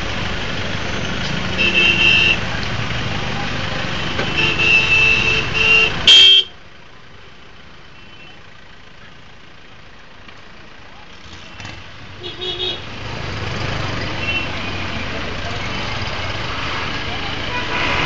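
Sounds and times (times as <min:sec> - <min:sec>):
road traffic: 0:00.0 - 0:18.0
vehicle horns honking: 0:01.5 - 0:02.4, 0:04.0 - 0:06.6, 0:11.6 - 0:12.9, 0:14.1 - 0:14.9, 0:16.7 - 0:18.0.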